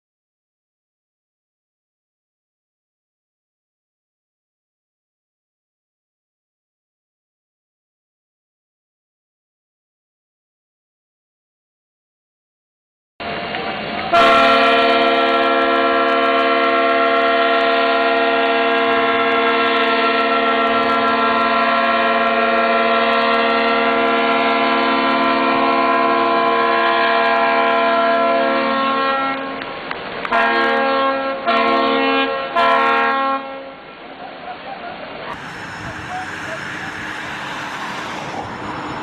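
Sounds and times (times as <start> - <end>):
ship's horn blasts: 14.1 - 29.6, 30.3 - 33.8.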